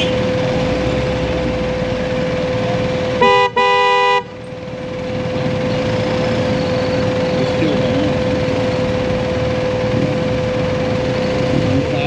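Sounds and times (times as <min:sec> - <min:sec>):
motorcycle riding noise: 0:00.0 - 0:12.0
vehicle horn beeps: 0:03.0 - 0:06.4.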